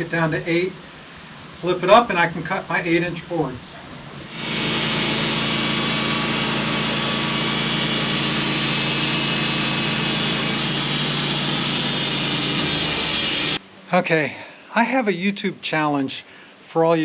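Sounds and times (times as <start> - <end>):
saw blade cutting wood: 4.2 - 13.6
sawmill engine drone: 4.2 - 13.6.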